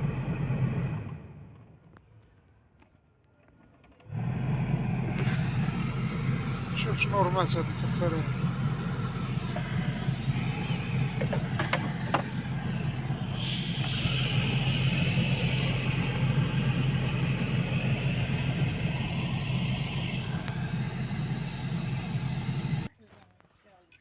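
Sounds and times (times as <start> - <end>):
heater blower fan humming: 4.1 - 22.9
hiss: 5.1 - 22.9.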